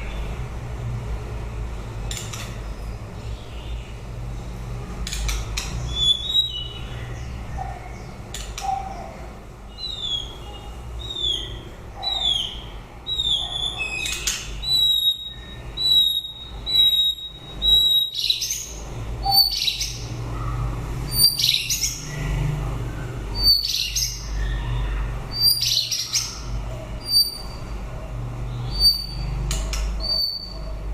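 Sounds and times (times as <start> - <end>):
bird singing whistled notes: 5.9 - 7.1, 9.7 - 20.1, 23.4 - 26.4, 27.0 - 27.6, 28.6 - 29.3, 30.0 - 30.6.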